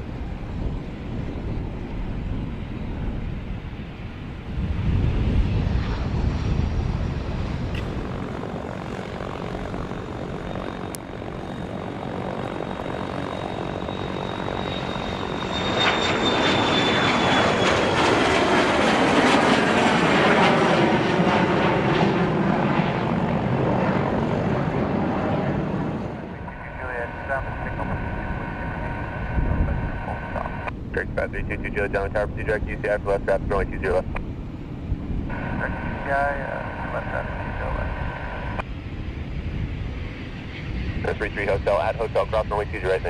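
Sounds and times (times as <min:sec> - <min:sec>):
aircraft engines passing: 0:00.0 - 0:43.0
high whine falling in pitch: 0:35.3 - 0:38.6.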